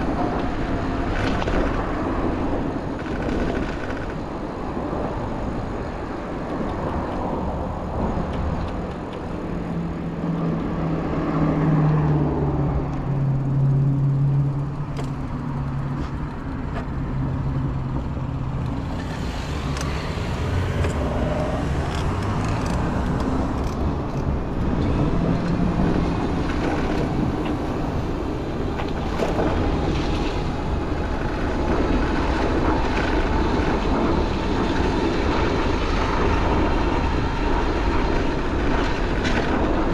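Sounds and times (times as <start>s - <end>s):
road noise of passing vehicles: 0.0s - 39.9s
low engine hum: 4.7s - 39.9s.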